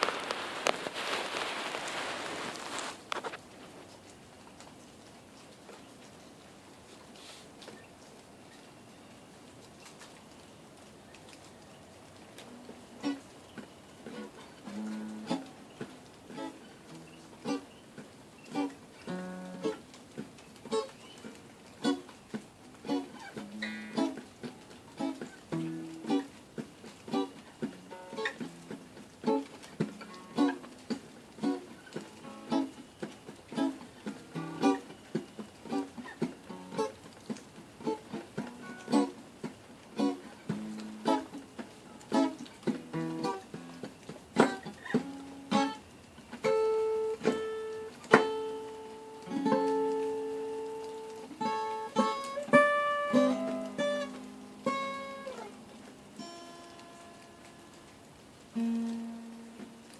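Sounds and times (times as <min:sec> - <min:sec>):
acoustic guitar plucked chords: 0:14.0 - 0:20.9, 0:22.8 - 0:37.0, 0:37.8 - 0:39.2, 0:39.9 - 0:57.8, 0:58.5 - 0:59.9.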